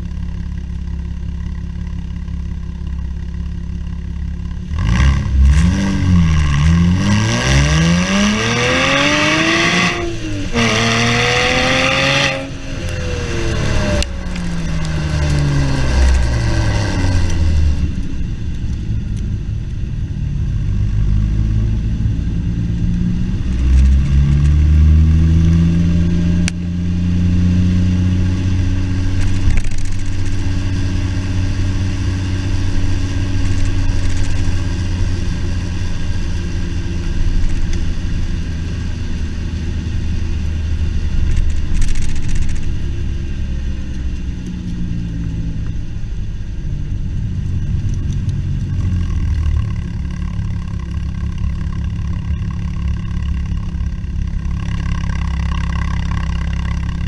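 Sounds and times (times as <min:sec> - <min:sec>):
car engine revving: 0:03.5 - 0:18.8, 0:19.9 - 0:57.0.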